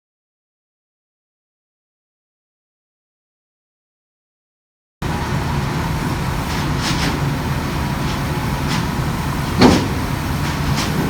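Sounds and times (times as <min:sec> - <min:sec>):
diesel engine running: 0:05.0 - 0:11.0
metallic clank: 0:08.0 - 0:11.0.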